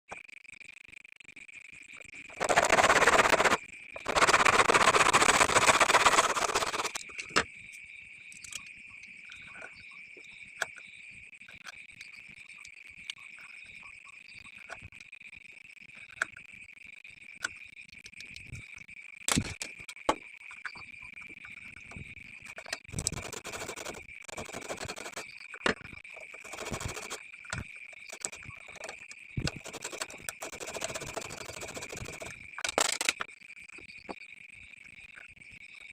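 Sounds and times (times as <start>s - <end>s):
bamboo rasping: 2.4s - 7.0s.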